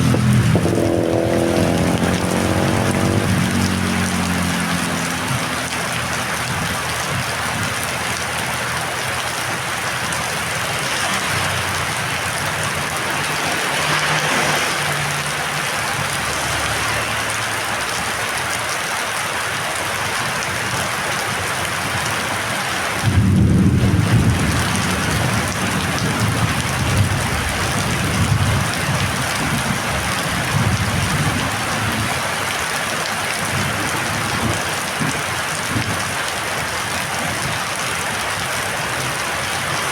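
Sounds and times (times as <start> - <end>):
thunder rumbling: 0.0 - 5.6, 23.0 - 32.2
heavy rain: 0.0 - 39.9.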